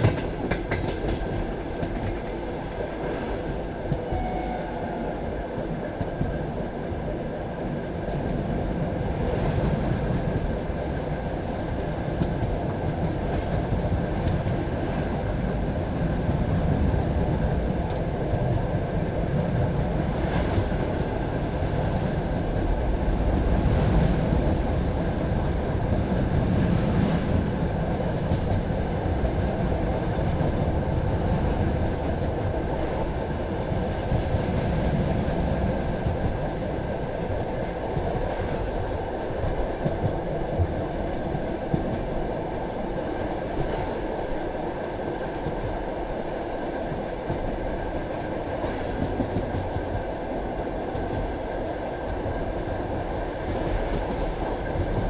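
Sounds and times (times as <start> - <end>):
rail joint clacks: 0.0 - 6.7
train wheels rumbling on rail: 0.0 - 55.0.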